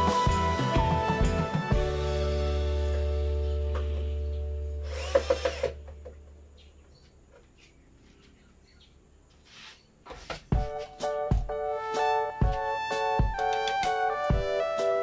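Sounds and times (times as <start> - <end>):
music: 0.0 - 5.5, 10.5 - 15.0.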